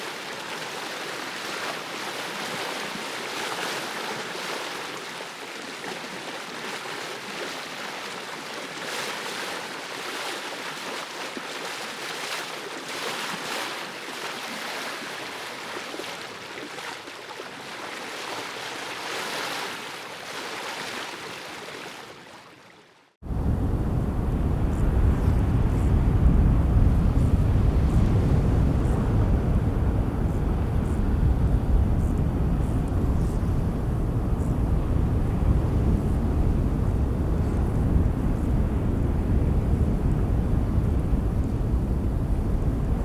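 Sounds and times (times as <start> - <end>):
ocean surf on a beach: 0.0 - 5.4, 23.3 - 43.0.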